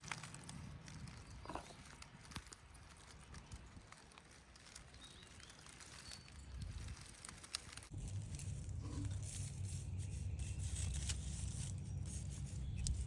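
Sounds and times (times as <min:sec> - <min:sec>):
low rumble: 0:07.9 - 0:13.0.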